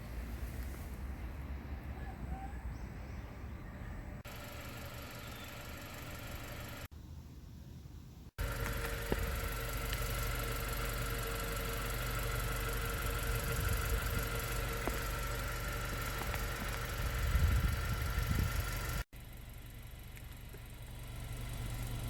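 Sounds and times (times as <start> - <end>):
car engine rumbling: 0.0 - 7.2, 8.0 - 22.0.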